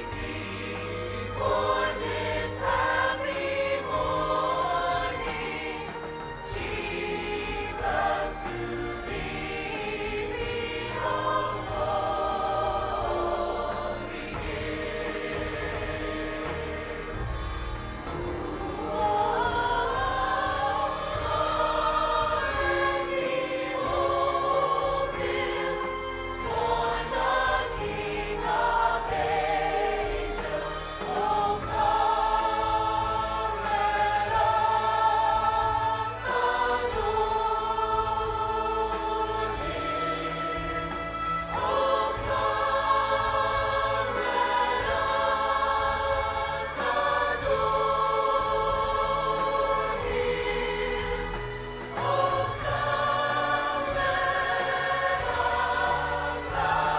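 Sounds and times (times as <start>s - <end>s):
church choir singing a hymn: 0.0s - 56.9s
instrumental accompaniment: 0.0s - 56.9s.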